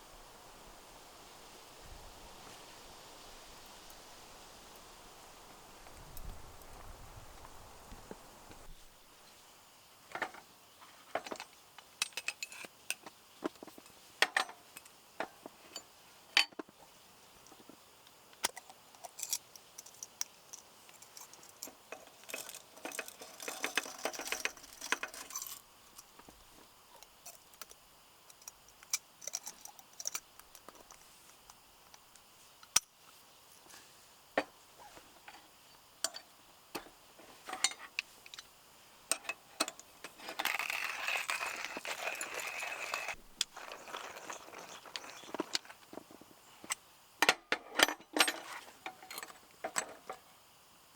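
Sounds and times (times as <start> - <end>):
small objects clicking and clinking: 18.4 - 26.2, 39.1 - 46.0
rustling clatter: 21.0 - 25.6.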